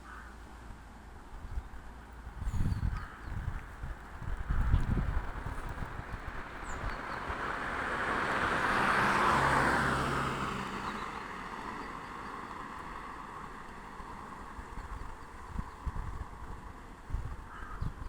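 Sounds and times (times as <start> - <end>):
vehicle driving past: 4.9 - 13.6.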